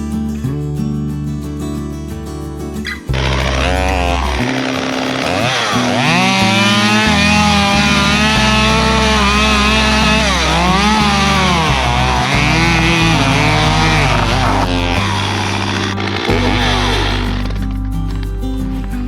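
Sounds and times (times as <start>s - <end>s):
background music: 2.2s - 19.0s
chainsaw revving and cutting wood: 3.1s - 17.8s.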